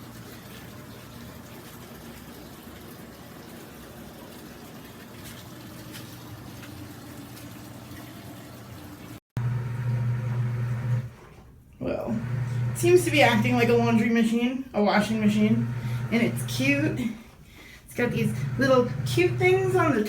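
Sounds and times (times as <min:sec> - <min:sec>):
water swishing in washing machine: 0:00.0 - 0:20.0
faint low motor hum: 0:06.0 - 0:20.0.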